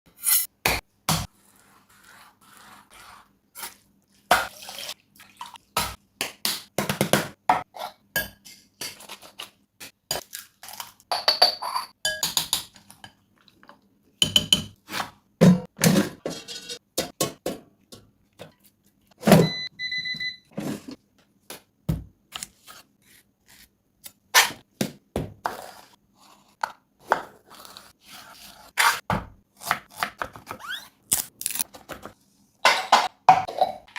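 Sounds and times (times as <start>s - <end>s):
utensils and pans knocking: 15.5s - 17.6s.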